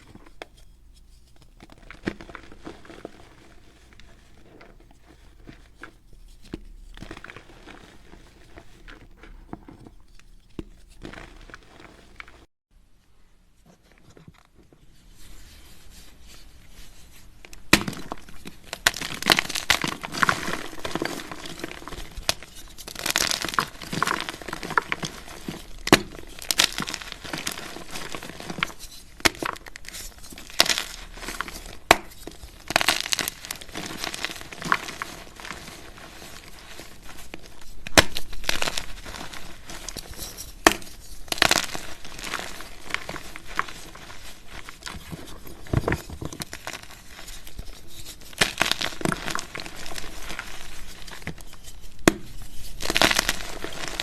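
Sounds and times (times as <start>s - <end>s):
baking soda crunching: 0.0s - 12.5s, 16.4s - 54.0s.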